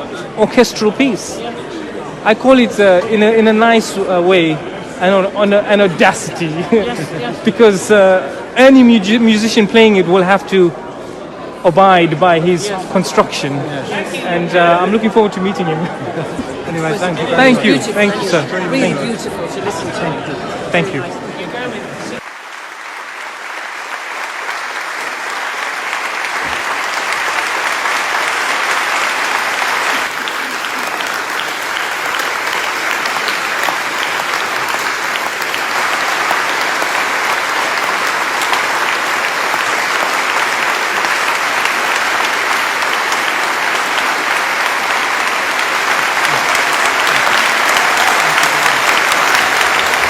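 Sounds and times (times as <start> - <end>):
audience applauding: 21.6 - 50.0.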